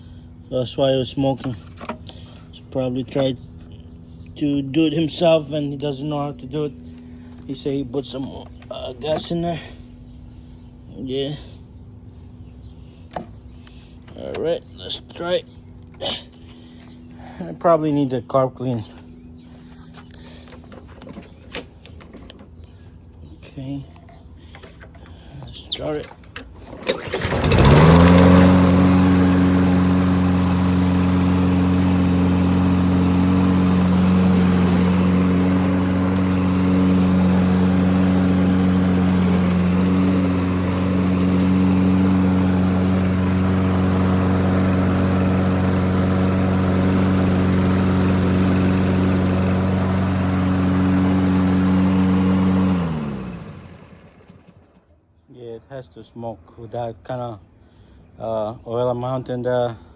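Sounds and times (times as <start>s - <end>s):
lawn mower engine running: 1.3s - 4.2s, 5.0s - 9.8s, 13.0s - 22.7s, 24.4s - 54.9s.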